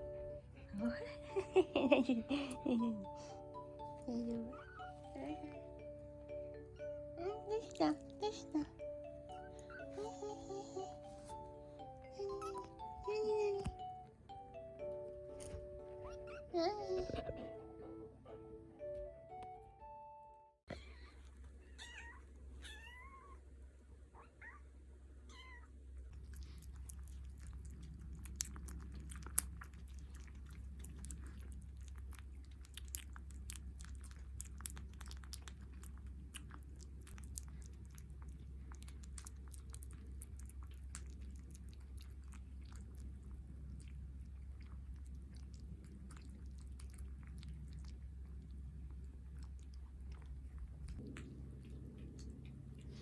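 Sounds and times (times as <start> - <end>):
kittens mewing: 15.9 - 17.5
cats chewing: 25.8 - 53.0.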